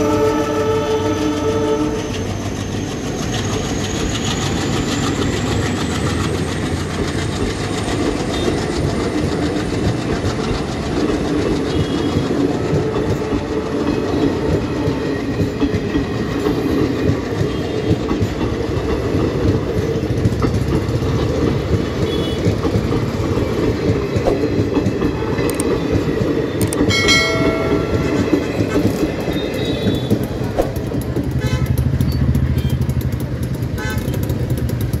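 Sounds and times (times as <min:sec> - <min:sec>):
train horn: 0:00.0 - 0:02.2, 0:11.7 - 0:13.8, 0:22.0 - 0:22.6, 0:31.3 - 0:31.8, 0:33.7 - 0:34.2
train wheels rumbling on rails: 0:00.0 - 0:35.0.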